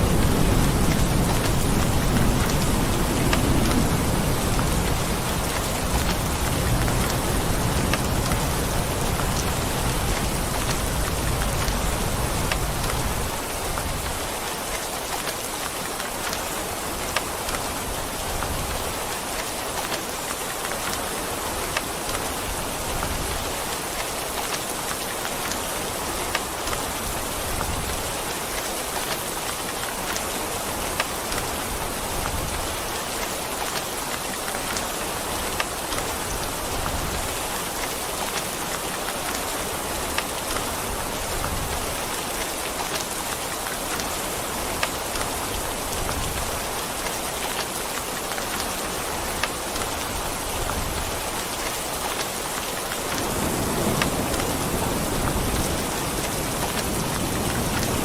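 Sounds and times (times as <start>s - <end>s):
low rumble of thunder: 0.0s - 14.0s, 53.2s - 58.0s
steady rain: 0.0s - 58.0s
sharp rain drop ticks: 0.6s - 17.7s, 33.1s - 58.0s.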